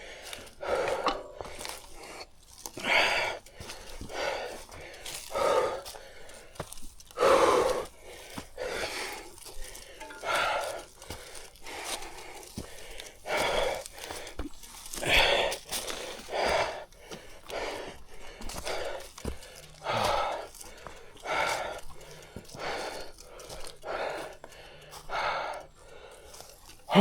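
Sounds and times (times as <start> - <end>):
man breathing hard: 0.0 - 27.0.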